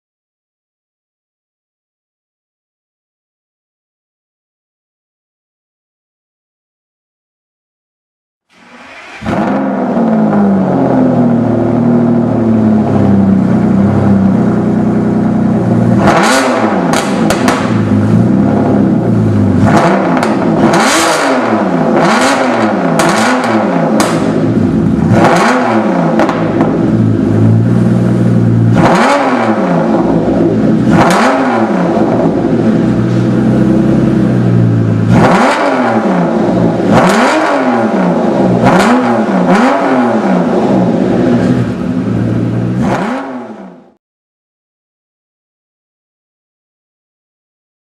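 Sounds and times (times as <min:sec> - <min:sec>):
car engine idling and revving: 0:08.5 - 0:44.0.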